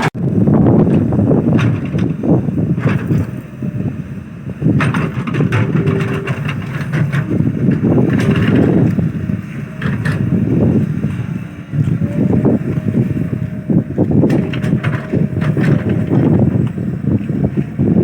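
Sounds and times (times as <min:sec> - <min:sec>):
excavator engine rumbling: 0:00.0 - 0:18.0
sharp metal clanks: 0:04.8 - 0:07.4.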